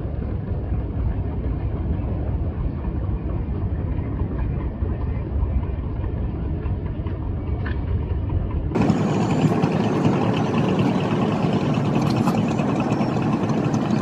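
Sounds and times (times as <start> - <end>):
boat engine running: 0.0 - 14.0
bright busy engine: 8.7 - 14.0.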